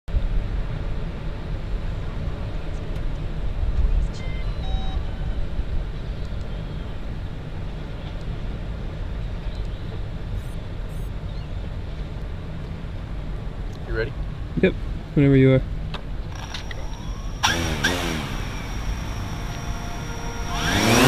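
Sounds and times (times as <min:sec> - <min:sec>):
stepped tones: 0:16.3 - 0:21.0.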